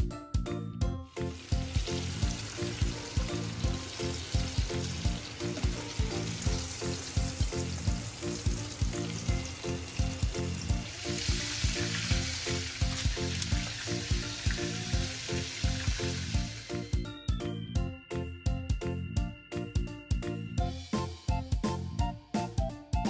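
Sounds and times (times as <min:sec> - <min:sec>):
background music with steady beat: 0:00.0 - 0:23.0
chicken sizzling in oil: 0:01.2 - 0:17.0.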